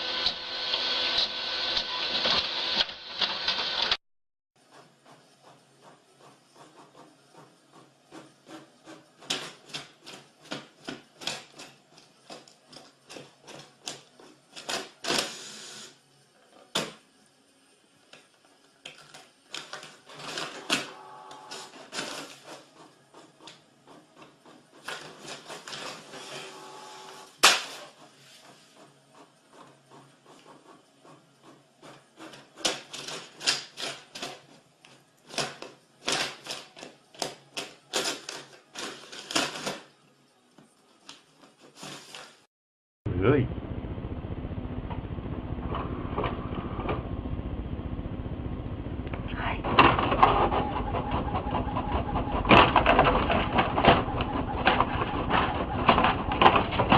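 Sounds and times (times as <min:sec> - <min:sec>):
printer mechanism whirring: 0:19.5 - 0:39.9, 0:49.0 - 0:56.9.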